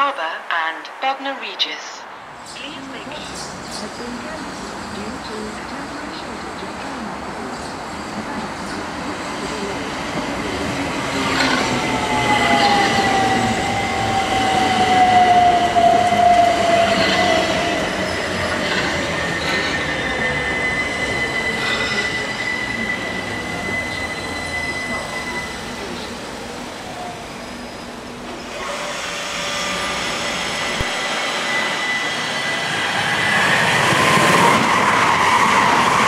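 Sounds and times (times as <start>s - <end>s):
electric train whine: 2.0s - 36.0s
high-pitched wheel squeal: 11.3s - 26.0s, 31.2s - 36.0s.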